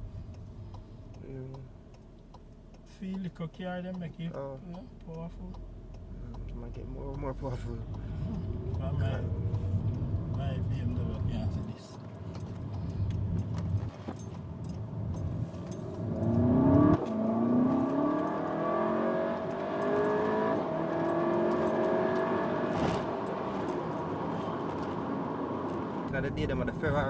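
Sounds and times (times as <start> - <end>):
car engine accelerating hard: 6.0 - 27.0.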